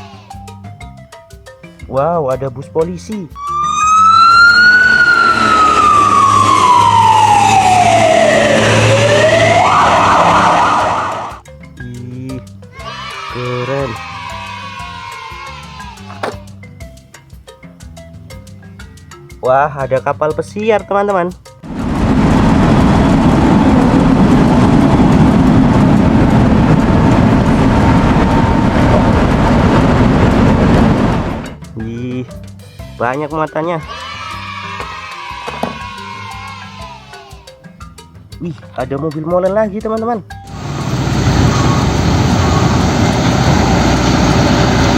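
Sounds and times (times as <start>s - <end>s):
siren wailing: 3.4s - 11.4s, 40.5s - 44.9s
large engine rumbling: 21.7s - 31.6s, 40.4s - 44.9s.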